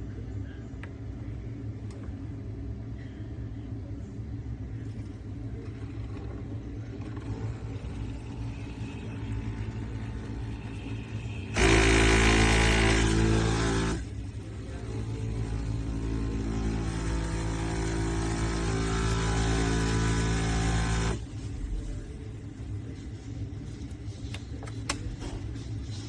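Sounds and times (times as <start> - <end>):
espresso pump buzzing: 5.7 - 21.2.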